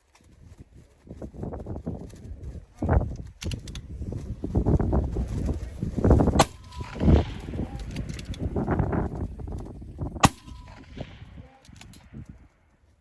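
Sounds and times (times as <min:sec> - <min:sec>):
rustling and knocking of gear: 0:00.0 - 0:06.4
rifle shots: 0:06.4 - 0:09.0, 0:10.2 - 0:12.2.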